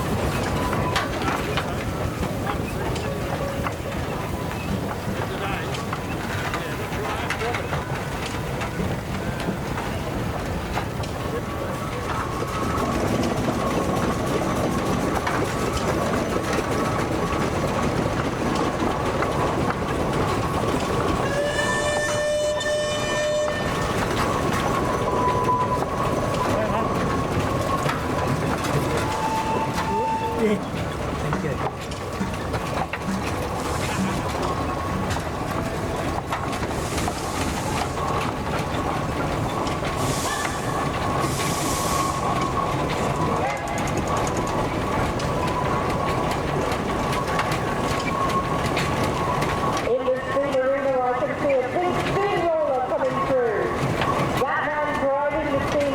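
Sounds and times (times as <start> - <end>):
knocks and clanks: 0.0 - 50.0
steam engines rumbling and chuffing: 0.0 - 55.9
steam whistle blowing: 21.2 - 23.8, 29.0 - 30.5
steam hissing: 33.2 - 43.4.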